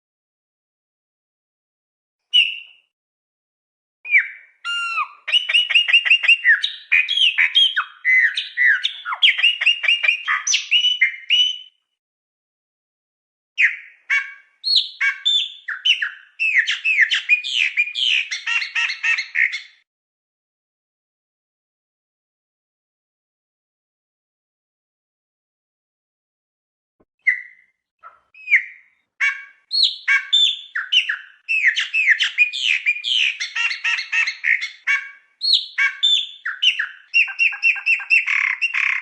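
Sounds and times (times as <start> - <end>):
songbird singing: 2.4 - 2.9, 4.1 - 11.8, 13.6 - 19.8, 27.2 - 39.0.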